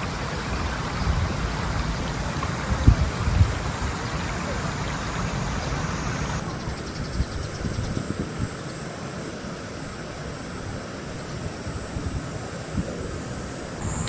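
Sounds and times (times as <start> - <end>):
flowing river water: 0.0 - 6.5
high insect drone: 0.0 - 14.0.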